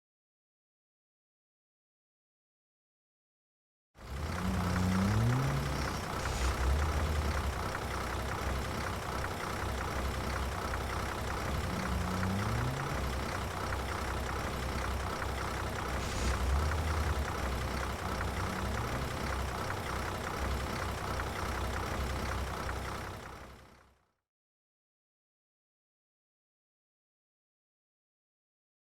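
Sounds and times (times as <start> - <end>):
truck engine accelerating: 4.0 - 23.9
highway traffic rushing: 4.2 - 23.1.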